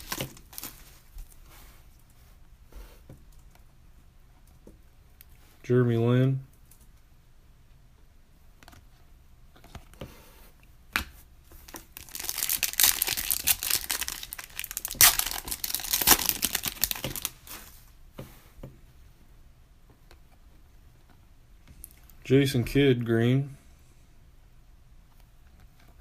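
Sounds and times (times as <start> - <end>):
wrapper tearing and crinkling: 0.0 - 0.8, 11.7 - 17.5.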